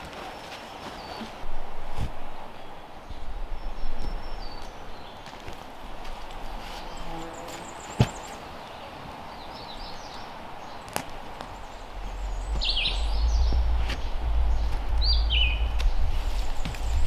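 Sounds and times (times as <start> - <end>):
forest ambience: 0.0 - 17.0
small birds chirping: 6.8 - 17.0
low rumble: 11.5 - 17.0.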